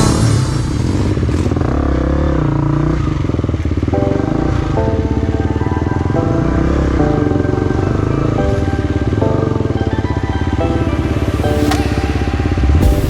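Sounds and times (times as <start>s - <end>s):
music: 0.0s - 1.6s, 3.9s - 13.0s
motorcycle engine revving: 0.0s - 6.1s.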